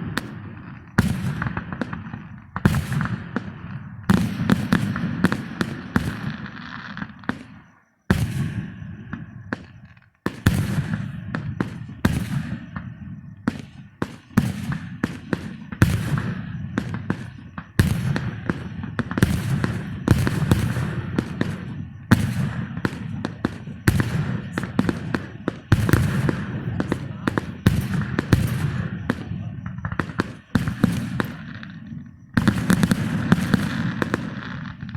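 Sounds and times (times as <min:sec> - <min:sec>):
firework cracks and crackling: 0:00.0 - 0:34.9
low rumble of firework booms: 0:00.0 - 0:34.9.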